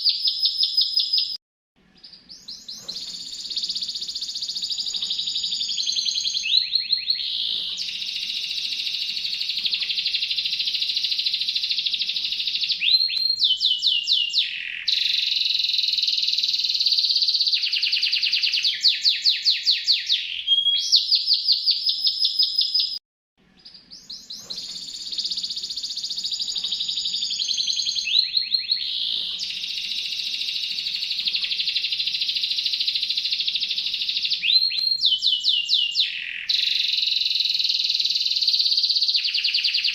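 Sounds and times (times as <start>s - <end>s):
songbird trilling song: 0.0s - 1.4s, 2.0s - 23.0s, 23.6s - 39.9s.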